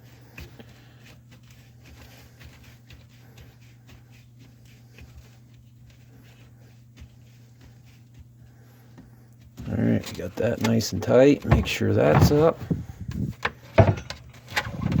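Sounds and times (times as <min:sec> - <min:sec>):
steady low hum: 0:00.0 - 0:15.0
plastic pipe clicks and knocks: 0:11.4 - 0:15.0.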